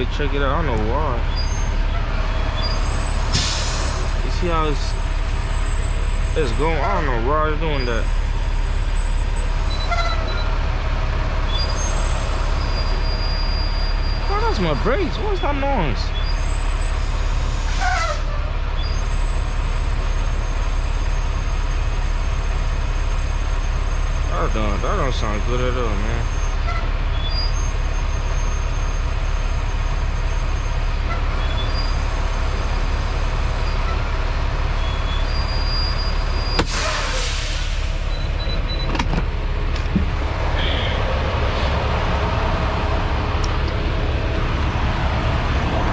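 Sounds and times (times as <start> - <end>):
truck engine rumble: 0.0 - 45.9
air hissing from brakes: 2.7 - 4.3, 35.2 - 38.4.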